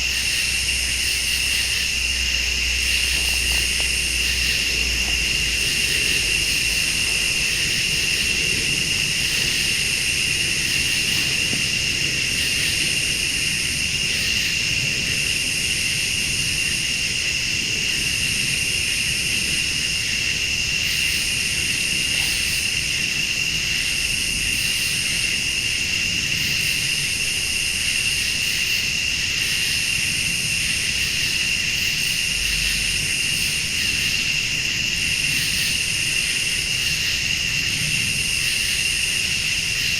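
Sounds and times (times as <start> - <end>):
low steady rumble: 0.0 - 24.6
crickets trilling: 0.0 - 39.9
high insect buzz: 0.0 - 39.9.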